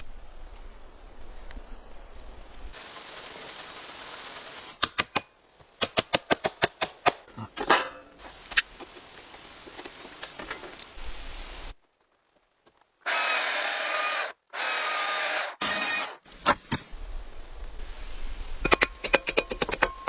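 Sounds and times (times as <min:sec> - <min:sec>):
short scraping rustle: 0:02.7 - 0:04.8.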